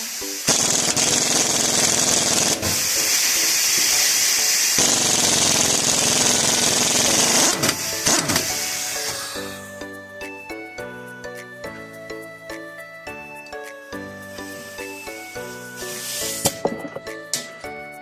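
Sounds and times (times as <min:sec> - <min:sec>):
power tool running: 0:00.5 - 0:09.5.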